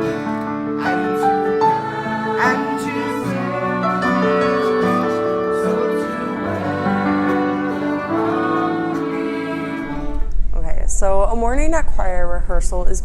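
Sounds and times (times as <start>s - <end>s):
piano: 0.0s - 10.5s.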